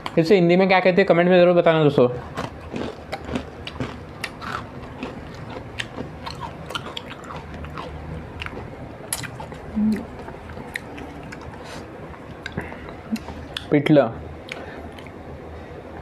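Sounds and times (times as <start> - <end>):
crunchy chewing: 2.2 - 13.7
low hum: 2.2 - 16.0.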